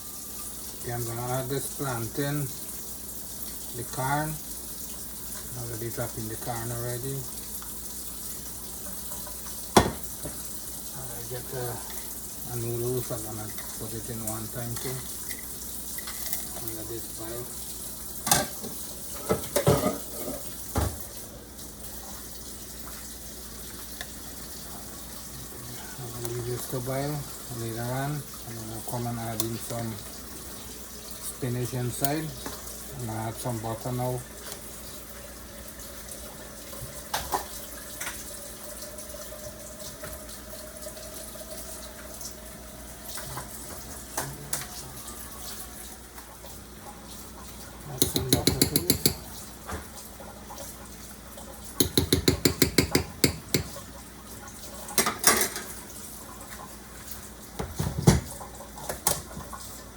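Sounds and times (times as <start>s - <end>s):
soup boiling in pot: 0.0s - 59.9s
utensil knocking against pot: 48.0s - 49.3s, 51.8s - 53.8s.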